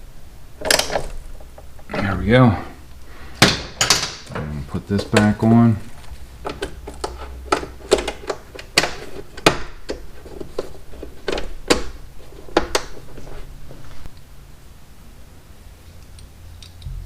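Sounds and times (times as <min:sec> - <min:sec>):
hand tools knocking and clicking: 0:03.4 - 0:05.6, 0:06.4 - 0:13.1.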